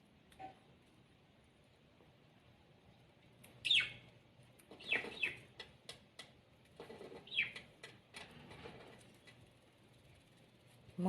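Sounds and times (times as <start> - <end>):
pet birds calling: 3.6 - 4.1, 4.7 - 5.7, 7.0 - 7.7.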